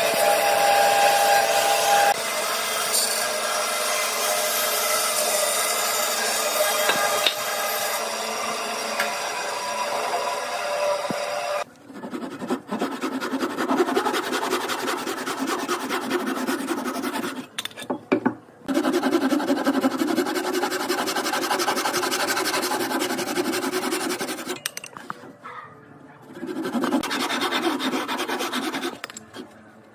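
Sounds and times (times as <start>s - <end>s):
wood rubbing by hand: 11.9s - 17.6s, 18.7s - 24.6s, 26.3s - 29.6s.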